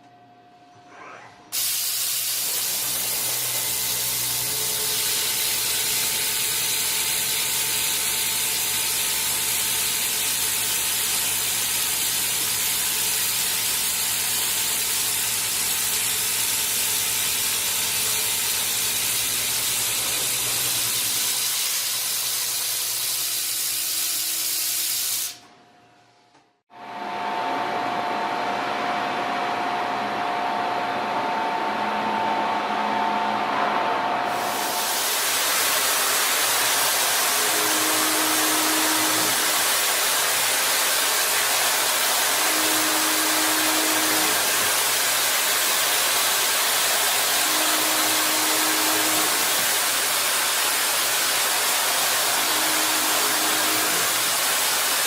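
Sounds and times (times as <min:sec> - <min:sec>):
cutting machine hissing: 0:01.5 - 0:25.4, 0:34.2 - 0:55.0.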